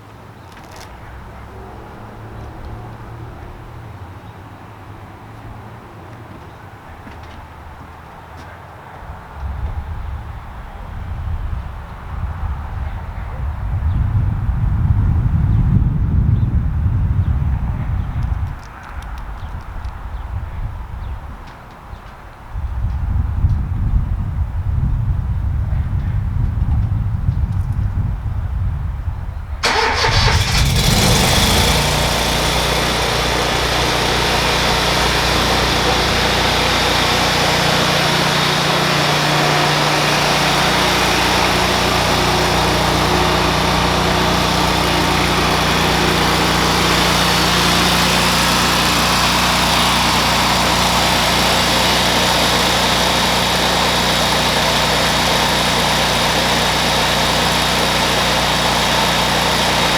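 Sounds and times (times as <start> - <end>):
truck engine starting and idling: 29.6 - 59.9.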